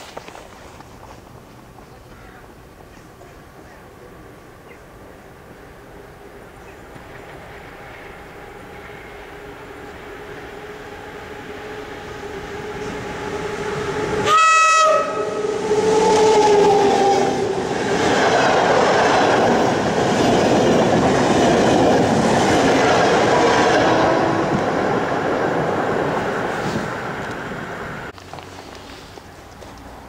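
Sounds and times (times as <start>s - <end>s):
locomotive whine: 4.2s - 29.8s
train wheels on rails: 5.4s - 30.0s
train horn blast: 8.6s - 17.6s.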